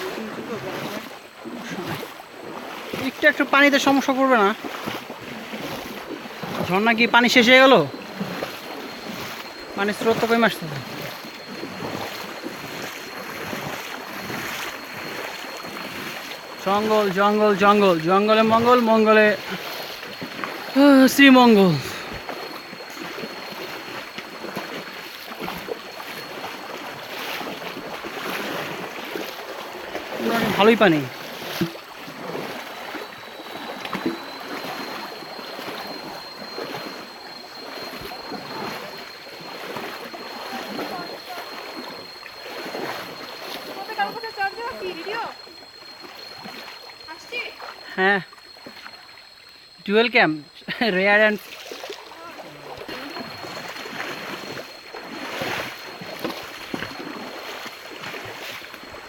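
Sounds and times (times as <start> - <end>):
stream water flowing: 0.0 - 59.0
high-pitched tone: 7.0 - 26.9.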